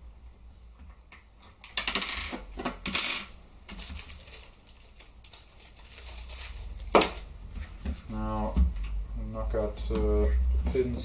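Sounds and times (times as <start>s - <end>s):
small parts clicking and rattling: 1.4s - 7.2s.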